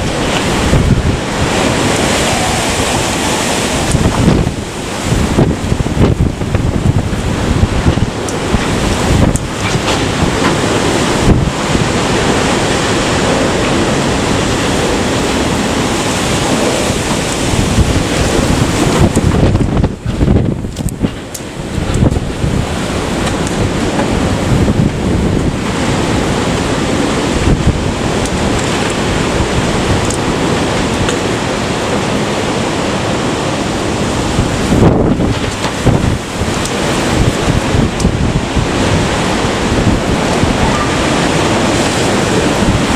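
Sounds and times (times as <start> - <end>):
strong wind gusts: 0.0 - 42.9
wind buffeting microphone: 0.0 - 42.9.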